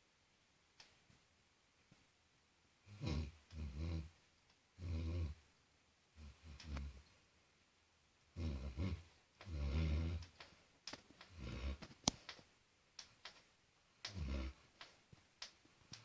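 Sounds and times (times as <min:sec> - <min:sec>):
dog snoring: 0:02.9 - 0:04.1, 0:08.4 - 0:10.3, 0:11.3 - 0:11.8, 0:14.1 - 0:14.6.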